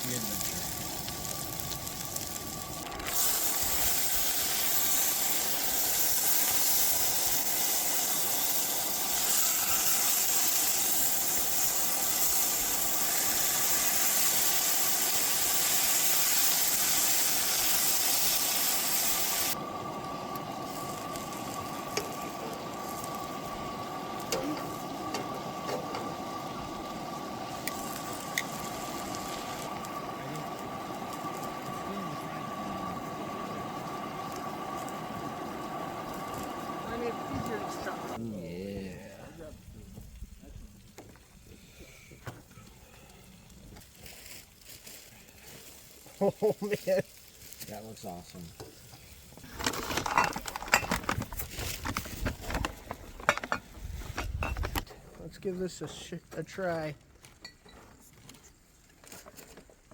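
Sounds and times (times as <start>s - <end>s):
faint steady whine: 0.0s - 40.6s
camp stove hissing: 0.0s - 59.9s.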